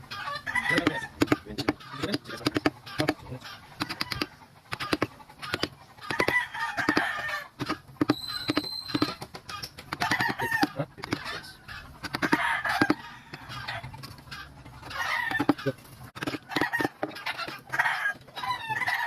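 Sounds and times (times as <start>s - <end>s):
animal-like calls: 0.0s - 19.0s
sharp wooden knocks: 0.7s - 3.2s, 3.8s - 11.3s, 12.0s - 13.4s, 14.0s - 17.8s.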